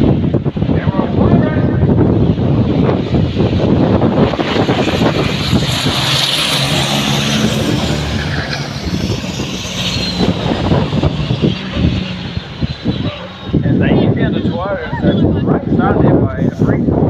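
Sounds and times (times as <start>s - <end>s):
race truck engines droning: 0.0s - 17.0s.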